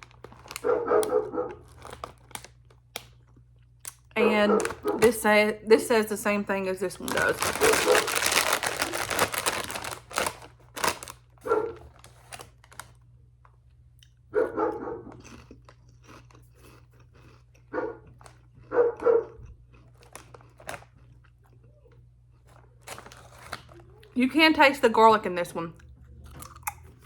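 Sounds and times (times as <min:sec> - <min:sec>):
potato chips being chewed: 0:00.0 - 0:05.2, 0:07.0 - 0:24.2, 0:25.7 - 0:27.0
dog barking: 0:00.6 - 0:01.7, 0:04.4 - 0:05.0, 0:07.6 - 0:08.1, 0:11.4 - 0:11.9, 0:14.3 - 0:15.3, 0:17.7 - 0:19.4.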